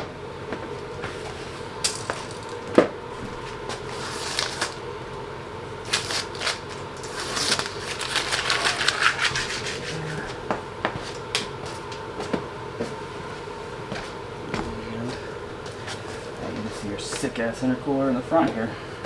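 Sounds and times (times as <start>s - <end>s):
faint steady hum: 0.0s - 19.0s
handling clicks and knocks: 0.6s - 4.7s
dense rustling crackle: 0.9s - 10.4s.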